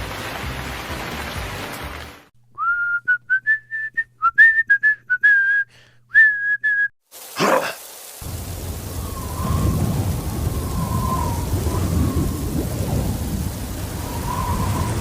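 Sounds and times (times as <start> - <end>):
person whistling a tune: 2.6 - 6.9
steady hiss: 7.1 - 15.0.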